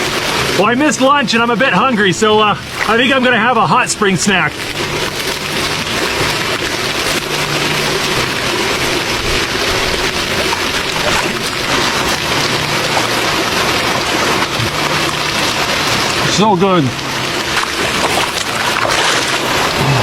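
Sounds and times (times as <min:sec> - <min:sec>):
falling water: 0:00.0 - 0:20.0.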